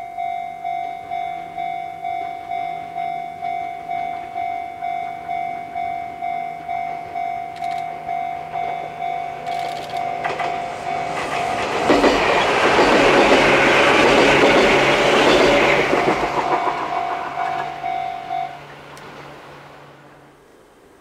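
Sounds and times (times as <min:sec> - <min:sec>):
level crossing warning bell: 0:00.0 - 0:18.8
electric train passing: 0:00.0 - 0:21.0
train wheels clattering over rails: 0:08.6 - 0:19.4.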